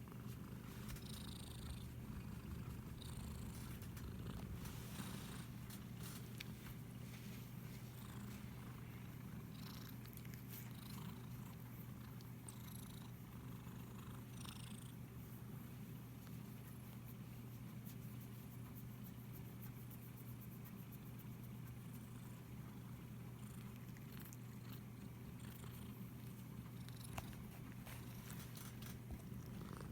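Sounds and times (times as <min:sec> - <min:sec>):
cat purring: 0:00.0 - 0:15.2, 0:20.5 - 0:29.9
hand rustling over fur: 0:04.5 - 0:08.6.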